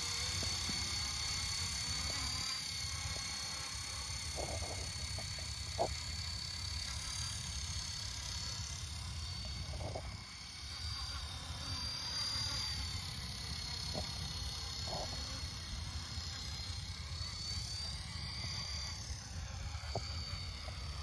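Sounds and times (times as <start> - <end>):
electric helicopter motor whine: 0.0 - 21.0
short croaks: 4.3 - 6.1, 13.9 - 15.5.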